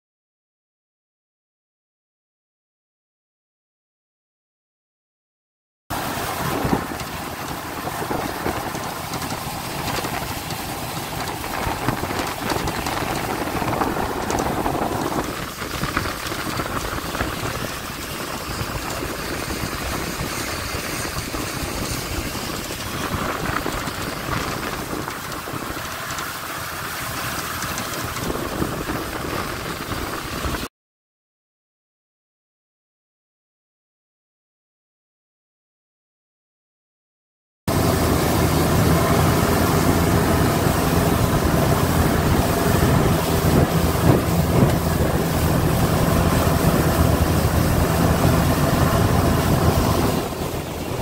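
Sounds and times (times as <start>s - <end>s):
motorboat engine running: 5.9s - 30.7s, 37.7s - 51.0s
wind and water rushing: 5.9s - 30.7s, 37.7s - 51.0s.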